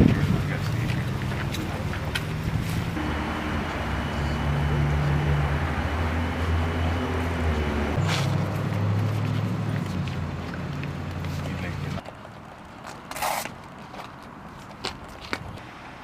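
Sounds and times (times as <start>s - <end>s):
car engine hum: 0.0s - 12.0s
road noise: 0.0s - 16.0s.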